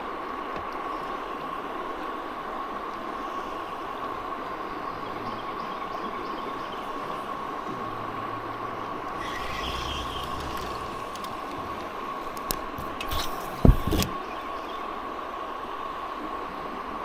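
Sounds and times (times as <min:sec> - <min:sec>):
sharp clicks: 0:09.2 - 0:14.2.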